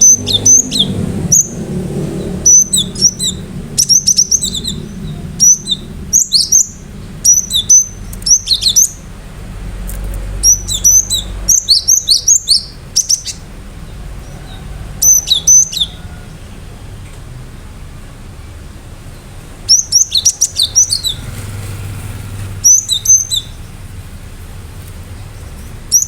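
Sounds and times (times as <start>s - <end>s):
bird singing sharp high notes: 0.0s - 9.0s, 10.4s - 13.5s, 19.7s - 21.6s, 22.6s - 23.6s.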